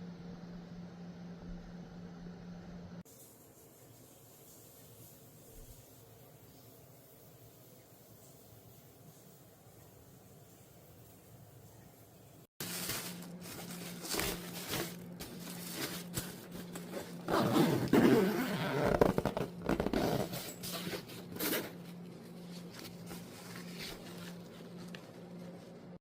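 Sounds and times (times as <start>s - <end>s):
rustling and scraping handling noises: 8.2s - 26.0s.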